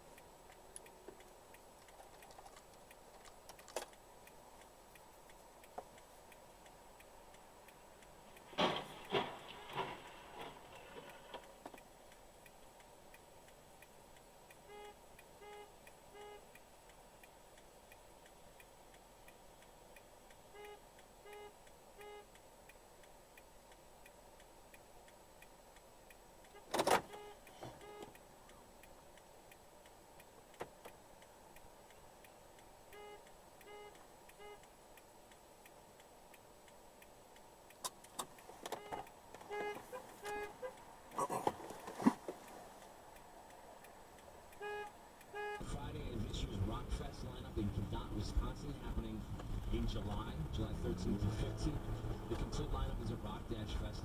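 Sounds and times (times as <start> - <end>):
short electronic beeps: 14.7 - 16.5, 20.5 - 22.3, 26.5 - 28.1, 32.9 - 34.7.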